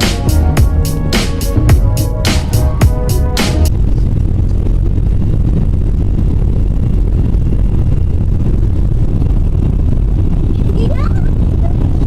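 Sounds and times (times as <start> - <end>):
airliner cabin engine rumble: 3.7 - 12.0.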